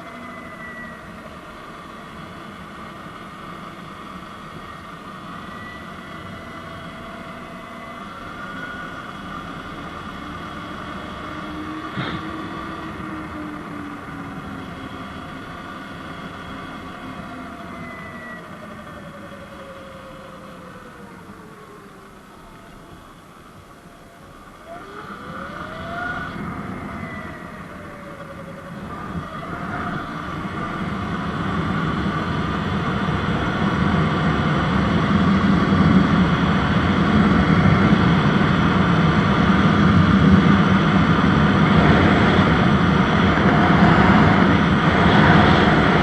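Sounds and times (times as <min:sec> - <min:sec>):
steady rushing noise: 0:24.9 - 0:46.0.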